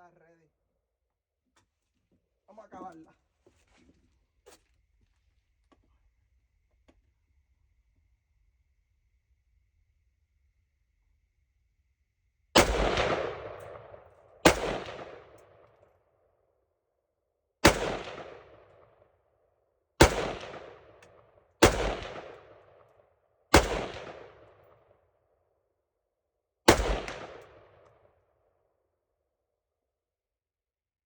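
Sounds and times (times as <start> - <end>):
rifle shots: 12.6 - 15.7, 17.6 - 19.0, 20.0 - 22.8, 23.5 - 24.7, 26.7 - 27.8.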